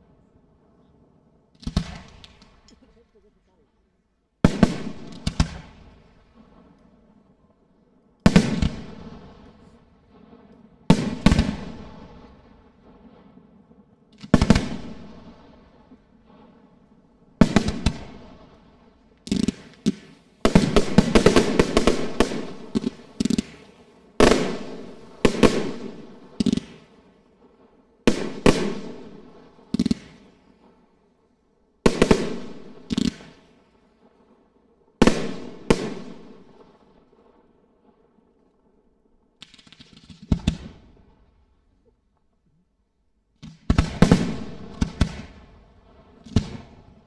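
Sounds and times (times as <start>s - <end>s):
rapid firework crackling: 4.5s - 6.8s, 14.1s - 27.5s, 28.1s - 30.9s, 31.9s - 33.6s, 39.4s - 40.9s.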